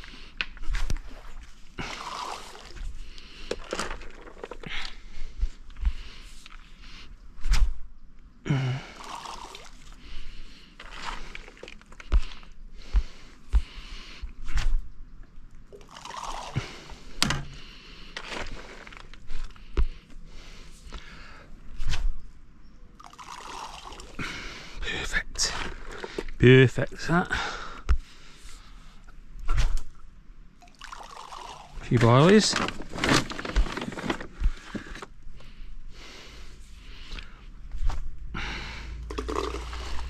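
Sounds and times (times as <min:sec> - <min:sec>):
water splashing and sloshing: 0:00.0 - 0:07.9, 0:08.8 - 0:13.8, 0:14.4 - 0:21.0, 0:22.9 - 0:24.8, 0:25.4 - 0:26.4, 0:28.0 - 0:35.1, 0:39.1 - 0:40.0.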